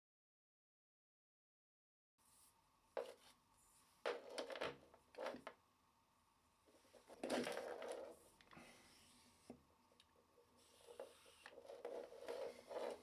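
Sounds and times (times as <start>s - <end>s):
scraping and rubbing: 6.8s - 9.6s, 10.6s - 13.0s.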